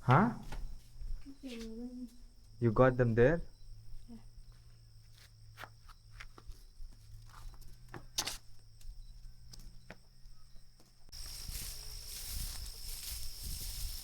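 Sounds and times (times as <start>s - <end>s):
rustling: 11.1s - 14.0s.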